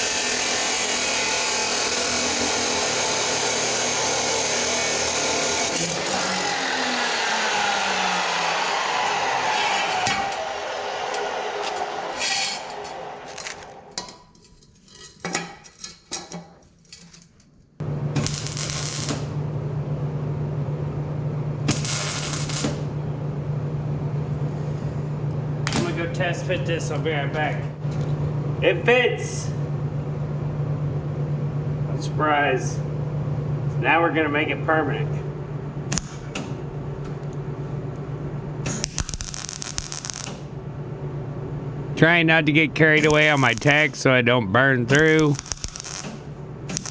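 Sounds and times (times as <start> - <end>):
welding crackle and sizzle: 11.2 - 13.7, 18.2 - 19.4, 21.7 - 22.9, 38.7 - 40.5, 45.2 - 46.9
steady low hum: 26.3 - 38.7.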